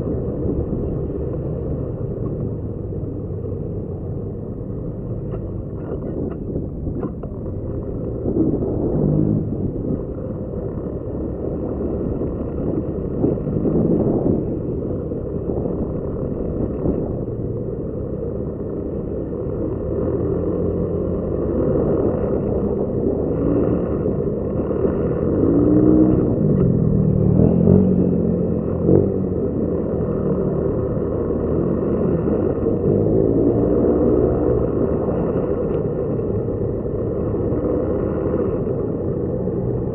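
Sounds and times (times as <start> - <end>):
low rumble: 0.0 - 39.9
motorcycle engine revving: 21.4 - 38.8.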